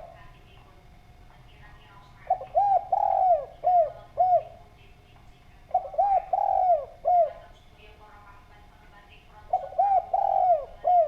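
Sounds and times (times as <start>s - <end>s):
dove cooing: 0.0s - 0.4s, 2.1s - 4.8s, 5.6s - 7.6s, 9.4s - 11.0s.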